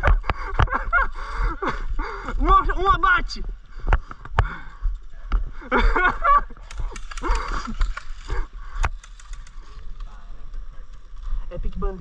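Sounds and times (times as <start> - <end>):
sharp click: 6.6 - 8.1, 8.8 - 9.6.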